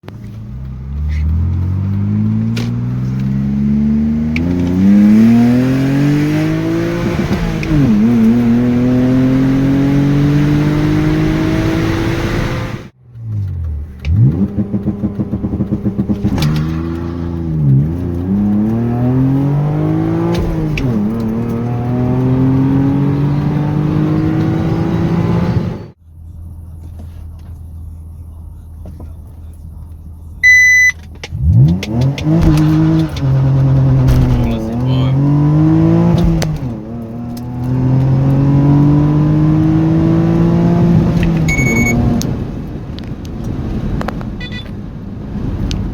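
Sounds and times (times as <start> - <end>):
car engine accelerating through gears: 0.0 - 26.0, 26.6 - 45.9
short electronic beep: 30.4 - 31.0, 41.5 - 42.1, 44.4 - 44.8.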